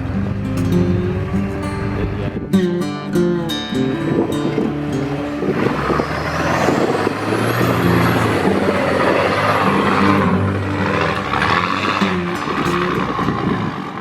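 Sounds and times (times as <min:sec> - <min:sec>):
diesel engine working under load: 0:03.8 - 0:14.0.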